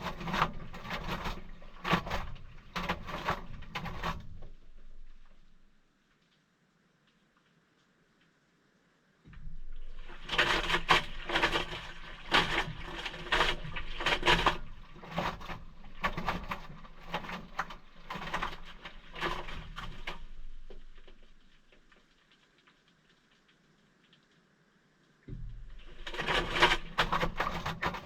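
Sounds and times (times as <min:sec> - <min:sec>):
water sloshing in washing machine: 0:00.0 - 0:05.7, 0:09.4 - 0:21.9, 0:25.4 - 0:28.0.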